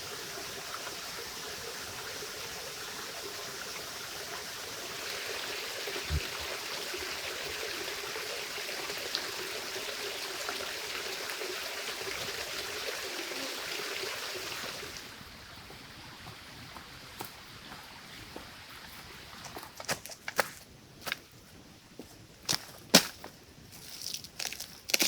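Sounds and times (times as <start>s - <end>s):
running water rushing: 0.0s - 19.4s.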